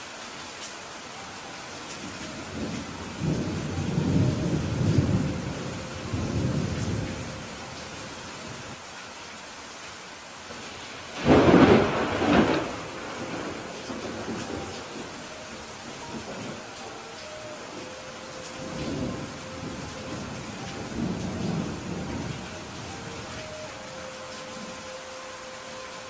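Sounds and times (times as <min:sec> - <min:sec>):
steady rain: 0:00.0 - 0:26.0
thunder rumbling: 0:02.2 - 0:08.8, 0:11.1 - 0:24.9
sharp thunderclap: 0:11.2 - 0:14.4.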